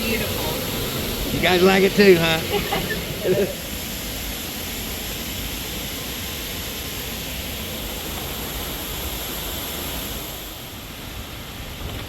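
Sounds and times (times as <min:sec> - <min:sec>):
wind buffeting microphone: 0:00.0 - 0:05.3
tyres rolling on trail: 0:00.0 - 0:12.0.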